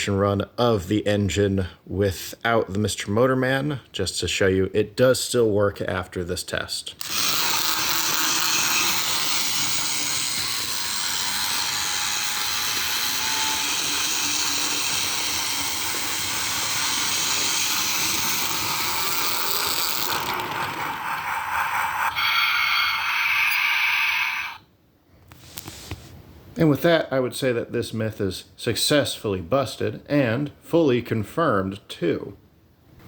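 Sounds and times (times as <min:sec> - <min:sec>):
toy train motor whirring: 0:07.0 - 0:24.6.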